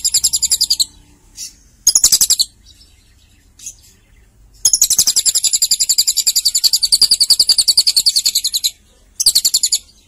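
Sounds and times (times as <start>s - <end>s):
lovebird rapid trill: 0.0s - 2.6s, 4.6s - 10.0s.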